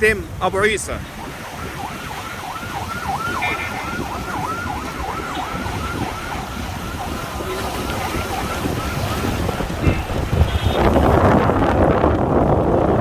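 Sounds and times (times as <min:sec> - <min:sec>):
wind: 0:00.0 - 0:13.0
siren wailing: 0:01.0 - 0:11.0.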